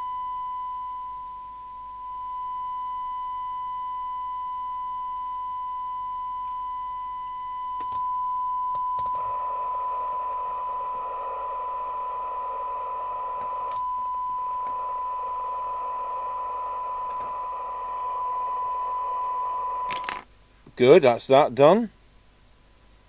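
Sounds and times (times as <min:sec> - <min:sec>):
steady test tone from radio speaker: 0:00.0 - 0:20.2
receiver noise hiss: 0:00.0 - 0:23.0
clicks: 0:12.9 - 0:13.9, 0:16.8 - 0:18.0.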